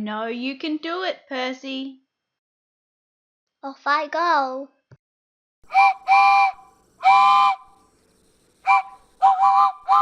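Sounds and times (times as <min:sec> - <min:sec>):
steam locomotive whistle: 0:05.7 - 0:07.8, 0:08.6 - 0:10.0.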